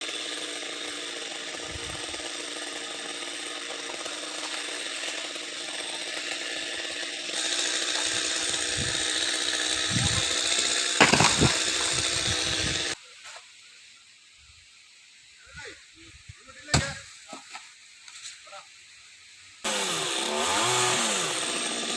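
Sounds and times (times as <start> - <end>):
chainsaw cutting a trunk: 0.0 - 13.0, 19.6 - 21.9.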